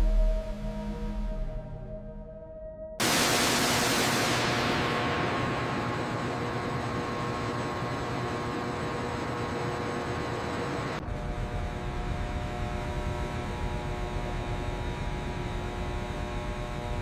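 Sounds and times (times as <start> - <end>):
machine hiss with hum tones: 3.0 - 17.0
deep machine rumble with hum: 4.3 - 17.0.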